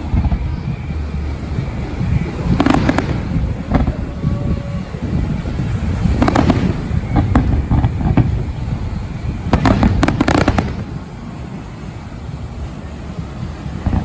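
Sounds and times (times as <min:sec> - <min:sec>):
fireworks bangs and crackles: 0:00.0 - 0:14.0
low rumble: 0:00.0 - 0:14.0.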